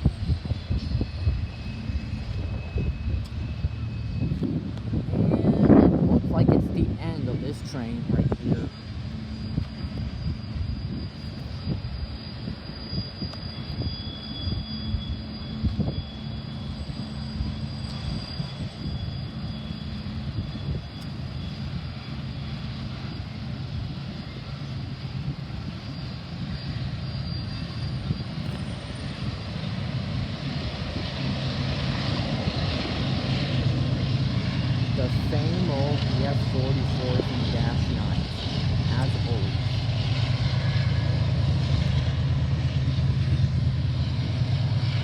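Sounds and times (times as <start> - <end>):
low engine drone: 0.0 - 45.0
thin high squeal: 8.7 - 21.6, 25.8 - 29.2.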